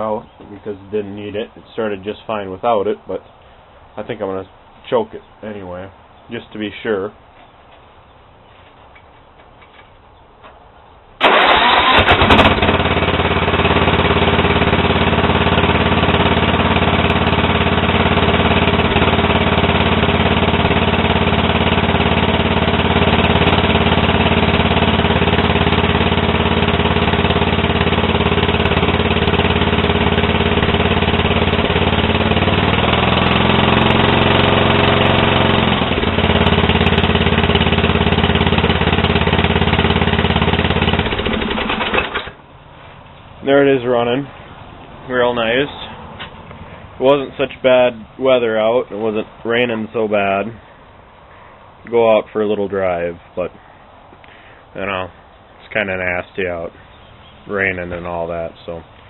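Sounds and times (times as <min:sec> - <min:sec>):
lawn tractor engine cranking: 0:11.2 - 0:42.4
lawn tractor engine running: 0:11.2 - 0:50.4.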